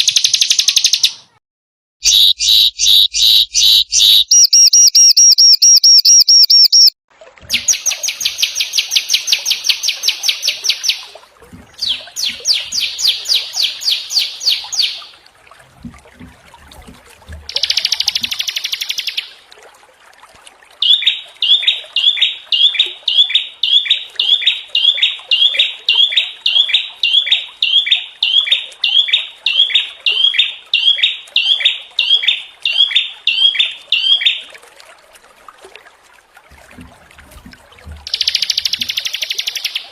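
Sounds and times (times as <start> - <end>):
repeated bird call: 0.0 - 1.4, 2.0 - 7.0, 20.8 - 34.4, 38.1 - 39.9
harsh trilling birdsong: 2.0 - 6.9.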